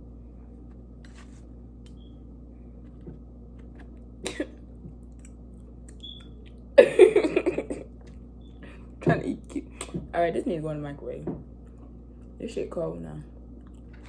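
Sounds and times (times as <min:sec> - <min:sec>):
steady low hum: 0:00.0 - 0:14.0
person coughing: 0:04.2 - 0:04.6, 0:06.8 - 0:07.9.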